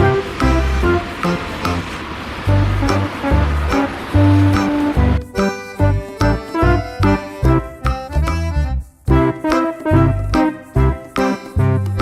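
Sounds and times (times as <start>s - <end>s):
bass hits: 0.0s - 9.3s
keyboard and horn melody: 0.0s - 12.0s.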